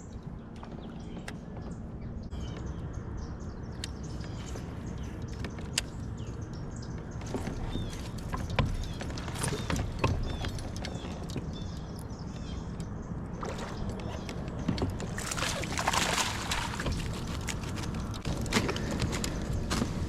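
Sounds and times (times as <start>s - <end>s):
water splashing and sloshing: 7.0s - 18.7s
kayak hull bumps: 14.7s - 17.8s.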